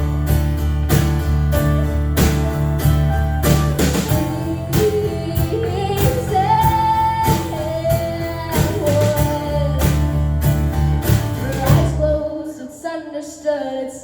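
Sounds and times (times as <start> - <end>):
strummed acoustic guitar: 0.0 - 12.2
high voice singing wordlessly: 4.0 - 10.1, 11.4 - 14.0.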